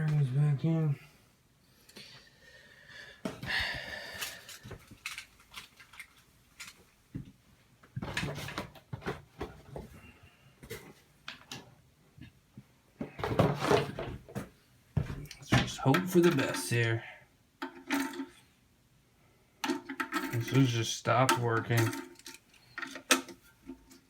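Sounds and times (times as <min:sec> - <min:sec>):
plastic parts clicking and rattling: 0:04.1 - 0:06.9, 0:17.6 - 0:18.4, 0:19.6 - 0:24.0.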